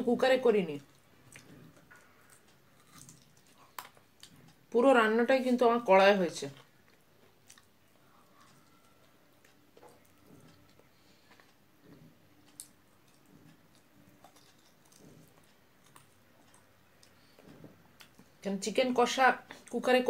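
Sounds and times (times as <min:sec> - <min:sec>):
person chewing food: 0:00.8 - 0:04.7, 0:06.5 - 0:18.4.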